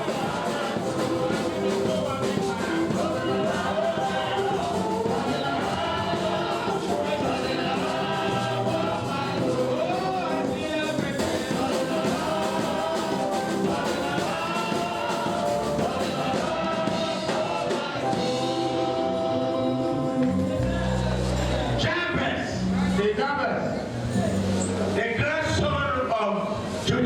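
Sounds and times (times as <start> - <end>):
gospel singing over instruments: 0.0 - 27.0.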